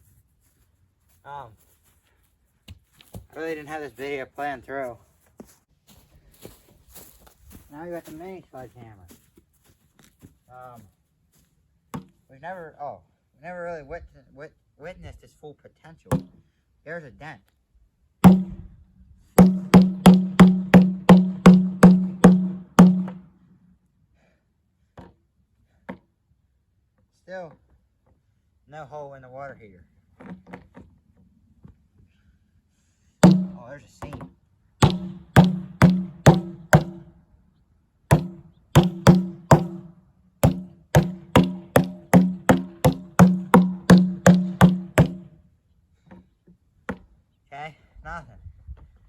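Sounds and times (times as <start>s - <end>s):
sledgehammer striking steel tank: 18.2s - 18.7s, 19.4s - 23.2s, 33.2s - 33.6s, 34.8s - 37.1s, 38.1s - 45.3s.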